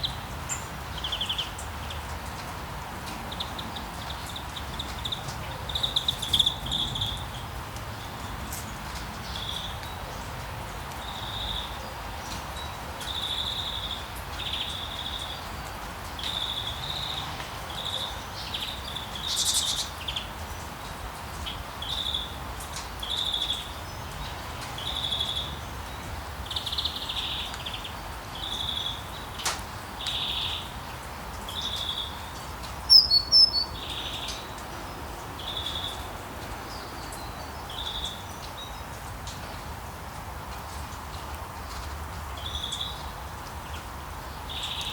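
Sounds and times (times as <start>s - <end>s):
rain hissing: 0.0s - 44.9s
songbird chirping: 3.1s - 10.3s, 23.0s - 39.5s, 42.4s - 44.9s.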